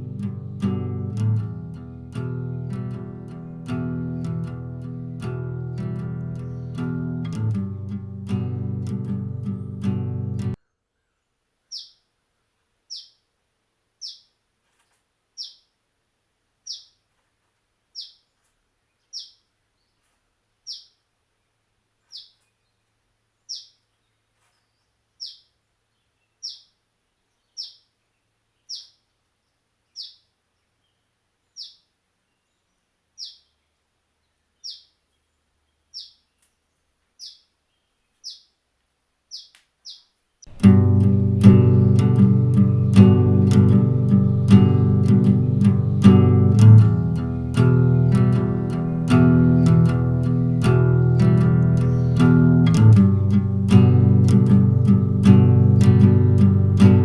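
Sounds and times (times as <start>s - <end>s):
bird chirping sharply: 11.7s - 12.0s, 12.9s - 13.2s, 14.0s - 14.3s, 15.4s - 15.7s, 16.7s - 17.0s, 18.0s - 18.3s, 19.1s - 19.4s, 20.7s - 21.0s, 22.1s - 22.4s, 23.5s - 23.8s, 25.2s - 25.5s, 26.4s - 26.7s, 27.5s - 27.9s, 28.7s - 29.0s, 30.0s - 30.2s, 31.6s - 31.8s, 33.2s - 33.5s, 34.6s - 35.0s, 35.9s - 36.4s, 37.2s - 37.5s, 38.2s - 38.6s, 39.3s - 57.0s.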